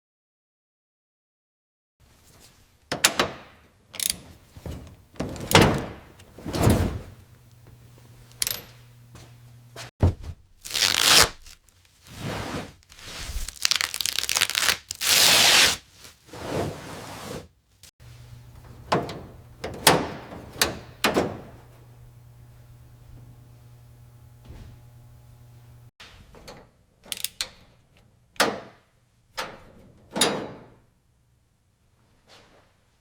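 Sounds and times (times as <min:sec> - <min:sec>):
knocks and clunks: 0:04.6 - 0:09.4, 0:10.0 - 0:10.5, 0:18.4 - 0:21.7.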